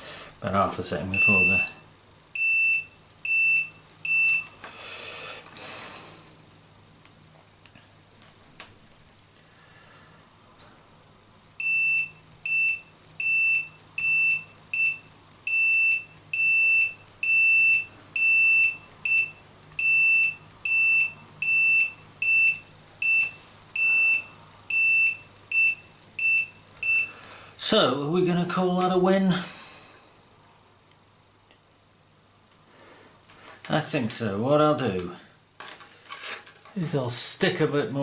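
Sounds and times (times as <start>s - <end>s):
multimeter continuity beeps: 1.1s - 4.6s, 11.5s - 27.2s.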